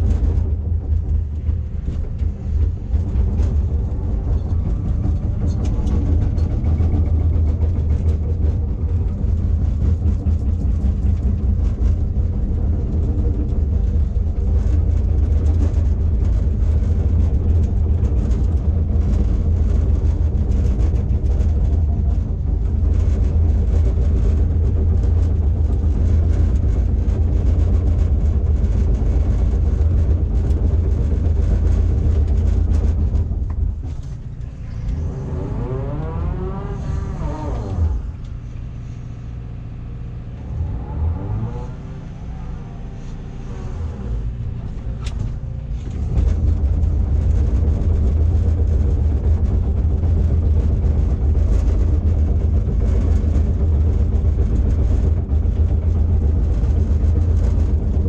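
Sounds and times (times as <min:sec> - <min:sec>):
backhoe diesel engine running: 0:00.0 - 0:40.9.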